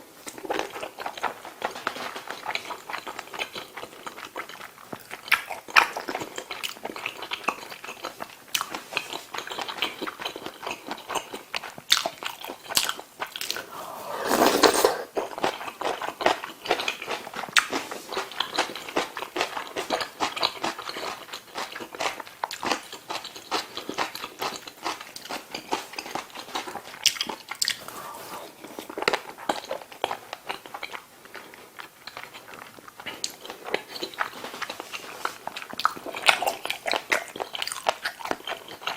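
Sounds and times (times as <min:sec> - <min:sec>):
person chewing food: 0:00.3 - 0:38.9.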